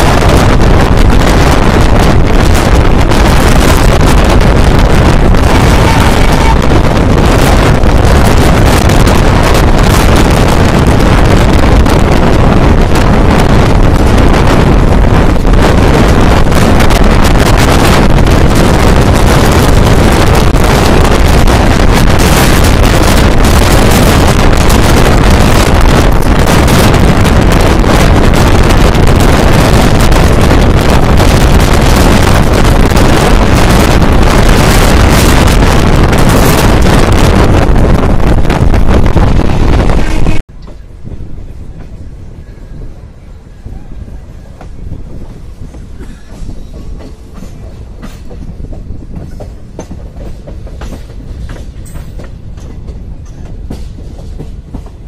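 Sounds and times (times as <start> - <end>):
train running on track: 0.0 - 55.0
wind buffeting microphone: 0.0 - 55.0.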